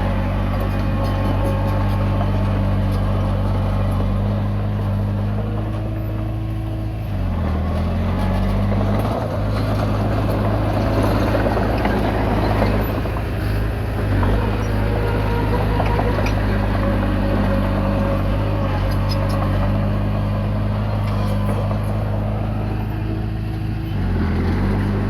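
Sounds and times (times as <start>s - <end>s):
bulldozer diesel engine running: 0.0s - 25.0s.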